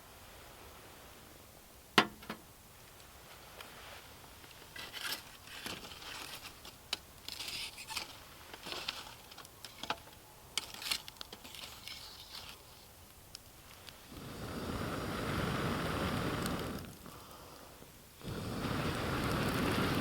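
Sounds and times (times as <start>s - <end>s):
clicks and rustling of handling: 4.3s - 14.0s.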